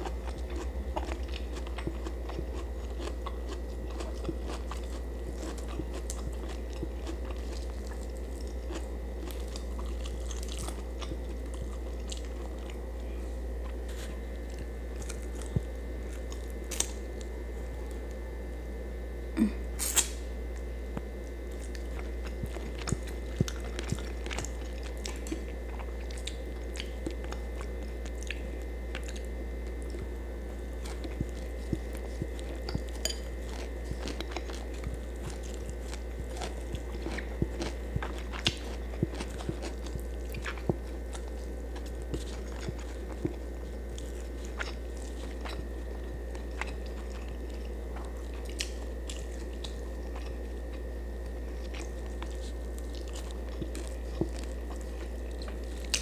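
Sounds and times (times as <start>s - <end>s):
chewing fried fish: 0.0s - 18.2s, 19.4s - 56.0s
steady low hum: 0.0s - 56.0s
mouth clicks and crunches: 19.8s - 20.2s, 21.0s - 56.0s.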